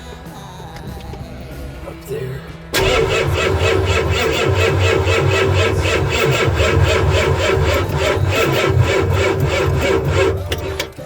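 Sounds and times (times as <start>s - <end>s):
starter cranking diesel engine: 2.7s - 11.0s.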